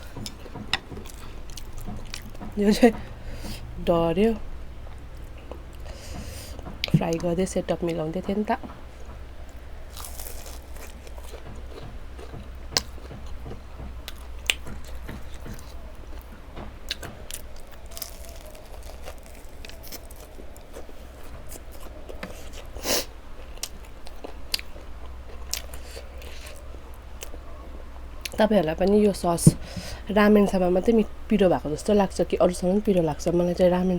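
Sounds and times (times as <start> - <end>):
chewing and crunching food: 0.0 - 3.8, 4.6 - 33.9
sharp crackles: 17.4 - 20.8.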